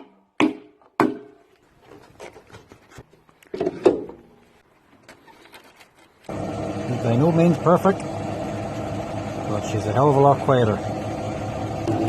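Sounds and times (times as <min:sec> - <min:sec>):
small clicks and rubbing: 0:04.8 - 0:06.3.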